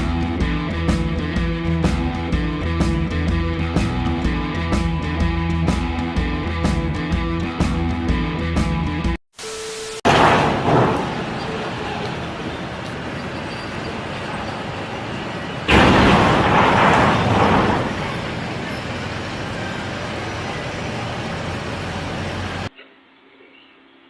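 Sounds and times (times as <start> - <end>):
road vehicle noise: 0.0 - 8.2, 10.1 - 22.7
loud rushing burst: 14.0 - 22.7.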